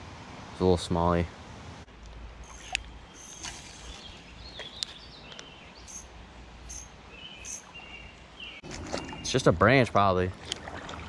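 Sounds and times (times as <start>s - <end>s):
low outdoor rumble: 0.0s - 11.0s
birds chirping and whistling: 2.4s - 9.4s.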